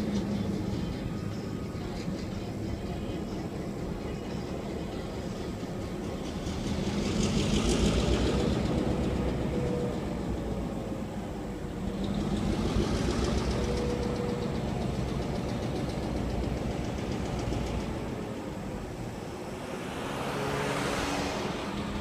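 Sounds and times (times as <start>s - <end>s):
train rolling past: 0.0s - 22.0s.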